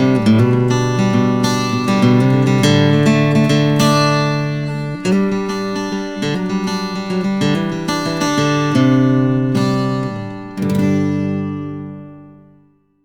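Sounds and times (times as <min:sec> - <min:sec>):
acoustic guitar picking and strumming: 0:00.0 - 0:12.7.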